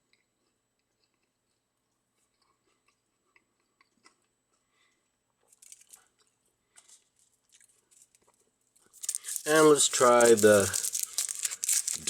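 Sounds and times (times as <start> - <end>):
chewing fries: 0.0 - 12.0
crackle: 5.4 - 12.0.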